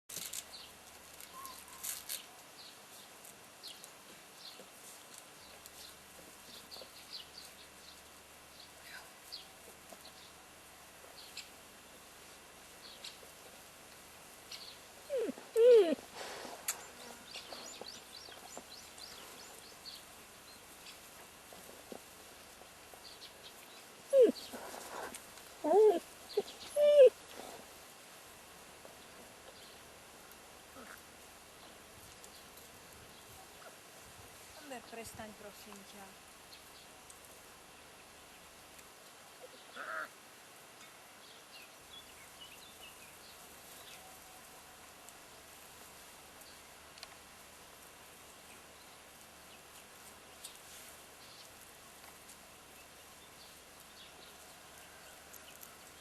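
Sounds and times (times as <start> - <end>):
puppies whimpering: 15.1 - 16.0, 24.1 - 27.1
puppy yelp: 15.1 - 16.0, 24.1 - 27.2
small bird chirping: 23.7 - 27.1.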